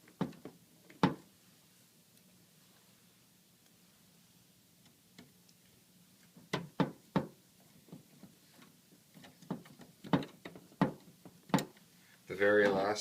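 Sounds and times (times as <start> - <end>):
hands knocking on printer: 6.5 - 7.4, 9.5 - 11.7.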